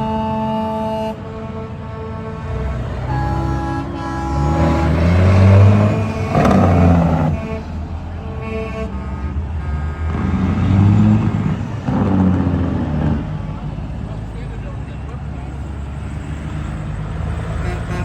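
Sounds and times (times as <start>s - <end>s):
truck horn: 0.0s - 13.2s, 17.3s - 18.0s
truck diesel engines revving: 0.0s - 18.0s.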